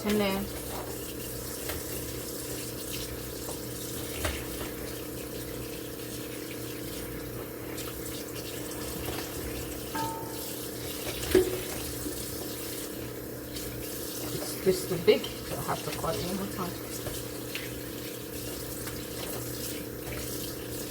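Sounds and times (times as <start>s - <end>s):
tap water running into sink: 0.0s - 20.9s.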